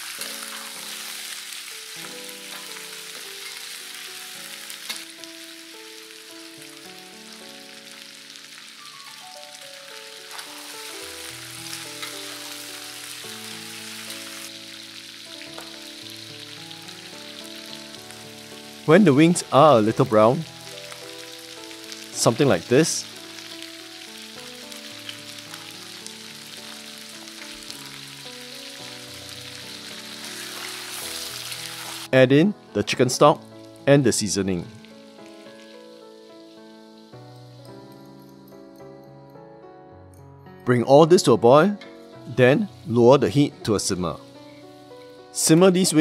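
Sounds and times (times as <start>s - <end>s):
food sizzling in a wok: 0.0s - 32.2s, 33.4s - 38.0s, 42.0s - 46.0s
soft background music: 0.0s - 46.0s.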